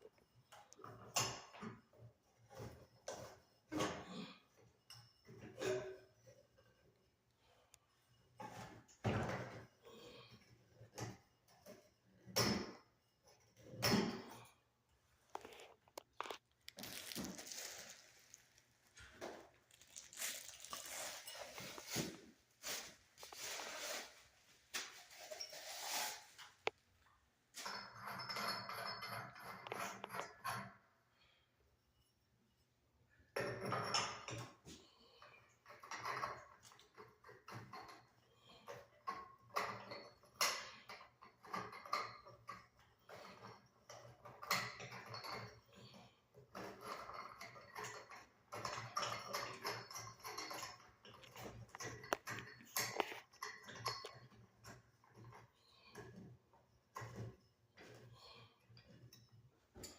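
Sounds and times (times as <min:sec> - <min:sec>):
hands handling hardware: 0:15.2 - 0:26.9
rustling and crinkling material: 0:15.2 - 0:27.0.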